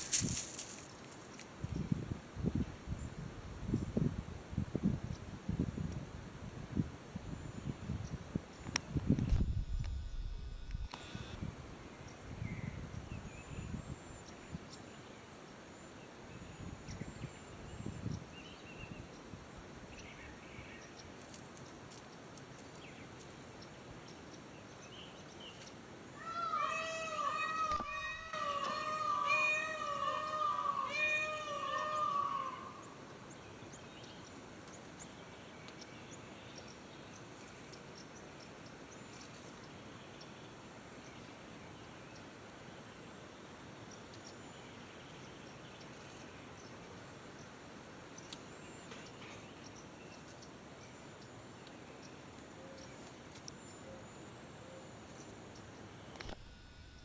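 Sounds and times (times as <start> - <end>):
steady background hiss: 0.0 - 57.0
small birds chirping: 19.9 - 54.3
peacock wailing calls: 26.2 - 33.0.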